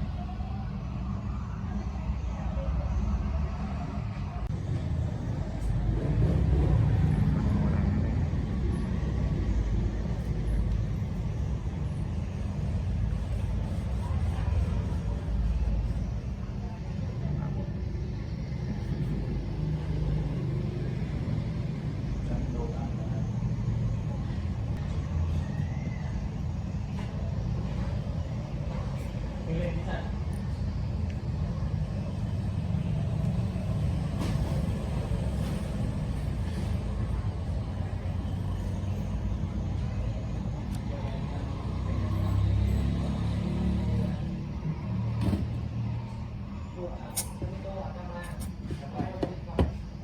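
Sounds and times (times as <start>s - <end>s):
low traffic rumble: 0.0s - 50.0s.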